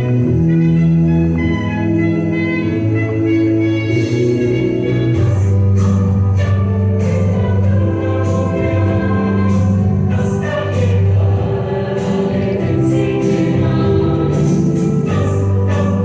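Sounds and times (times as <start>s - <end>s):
backing music with beat: 0.0s - 16.0s
group of voices singing: 3.9s - 16.0s.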